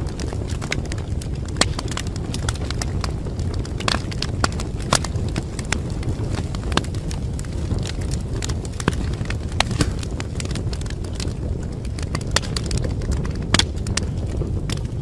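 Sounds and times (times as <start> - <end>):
fire crackles and pops: 0.0 - 15.0
wood fire rumbling: 0.0 - 15.0.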